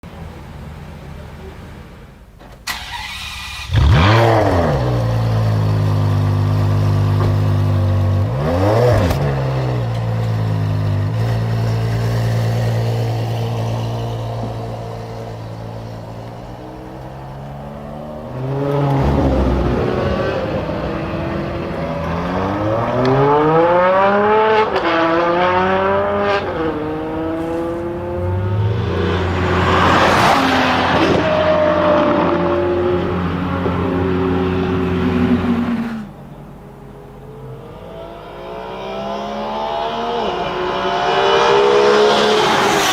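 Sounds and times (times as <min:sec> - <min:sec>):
car engine starting and revving: 0:02.6 - 0:42.9.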